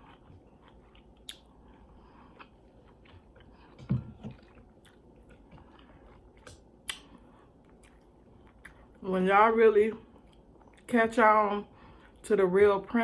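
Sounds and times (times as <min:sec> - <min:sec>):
chewing and biting: 0:00.0 - 0:09.0
wet mouth clicks and smacks: 0:06.4 - 0:07.1.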